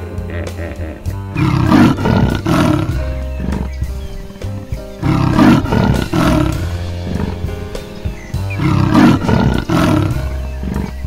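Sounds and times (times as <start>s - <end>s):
background music: 0.0s - 11.0s
big cat roaring: 1.4s - 3.8s, 5.0s - 7.5s, 8.6s - 11.0s.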